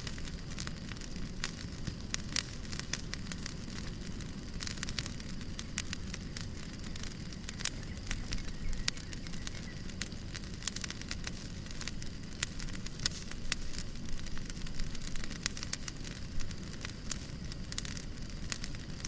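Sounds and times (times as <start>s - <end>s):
fireplace crackling: 0.0s - 19.0s.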